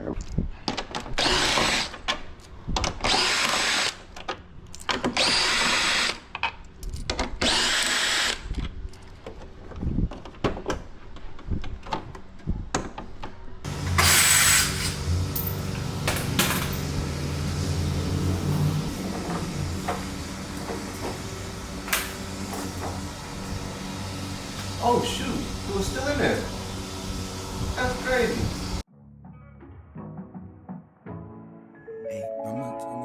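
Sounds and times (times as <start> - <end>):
power drill driving fasteners: 1.0 - 2.2, 2.8 - 8.7, 13.7 - 17.6.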